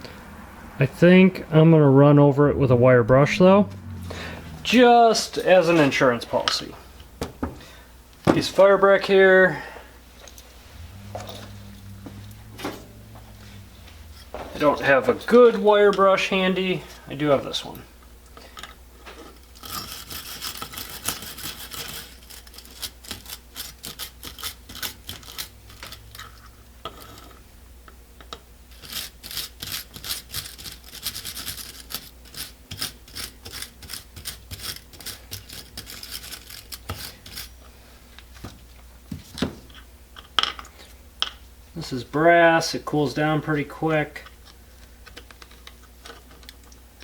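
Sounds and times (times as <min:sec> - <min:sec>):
wire brush scrubbing metal: 0:19.6 - 0:27.3, 0:28.7 - 0:37.6.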